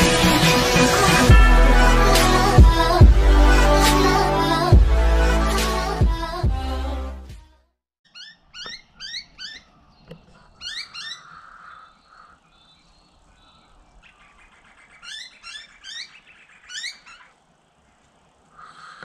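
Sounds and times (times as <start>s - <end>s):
high-pitched bird calls: 8.1s - 17.4s.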